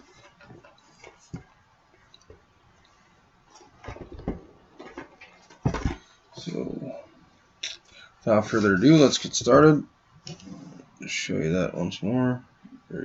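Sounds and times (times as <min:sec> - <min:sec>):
cardboard boxes clicking and knocking: 0:03.6 - 0:06.1.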